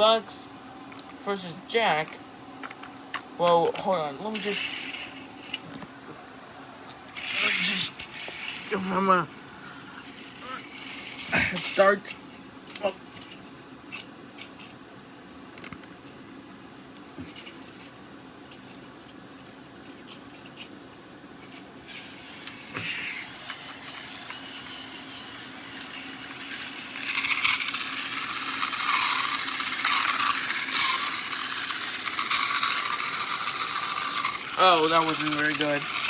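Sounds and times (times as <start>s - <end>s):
toy engine motor whirring: 4.0s - 5.6s, 7.1s - 9.3s, 10.0s - 14.7s, 21.8s - 36.0s
plastic toy trains clicking: 7.2s - 8.9s, 10.0s - 14.7s, 17.3s - 17.9s, 21.4s - 36.0s.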